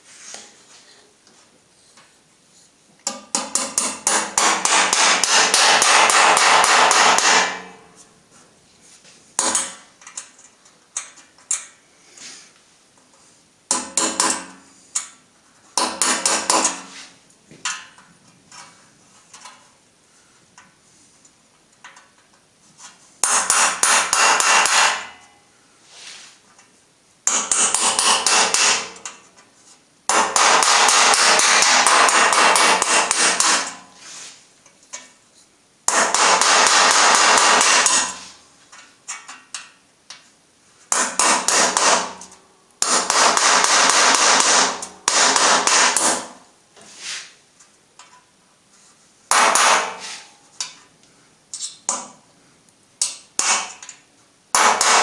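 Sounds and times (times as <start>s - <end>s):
power tool hammering: 3.1s - 7.8s, 9.4s - 9.8s, 13.7s - 14.6s, 15.8s - 16.9s, 23.2s - 25.2s, 27.3s - 29.1s, 30.1s - 33.9s, 35.9s - 38.3s, 40.9s - 46.4s, 49.3s - 50.1s, 53.4s - 53.8s, 54.5s - 55.0s.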